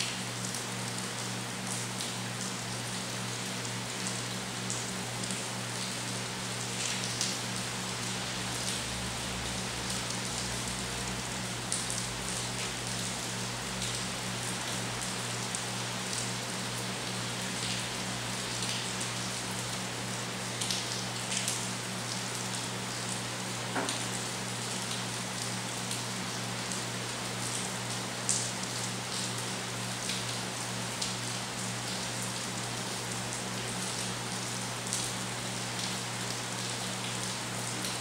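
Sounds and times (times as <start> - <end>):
rain falling: 0.0 - 38.0.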